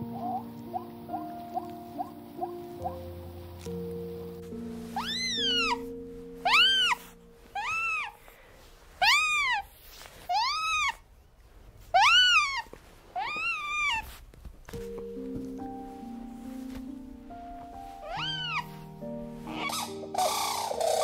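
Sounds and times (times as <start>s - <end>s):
soft background music: 0.0s - 10.7s, 11.6s - 21.0s
small animal high-pitched calls: 5.0s - 8.2s, 9.0s - 11.0s, 11.9s - 14.2s, 18.0s - 18.8s, 19.4s - 21.0s.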